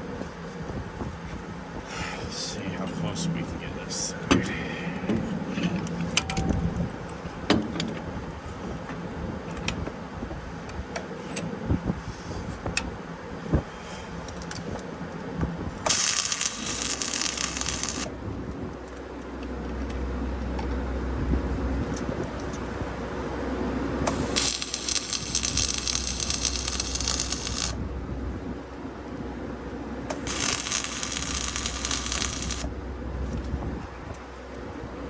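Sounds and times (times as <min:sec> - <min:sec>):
low hum: 0:15.8 - 0:35.0
hiss: 0:15.9 - 0:18.1, 0:24.1 - 0:27.8, 0:30.3 - 0:32.7.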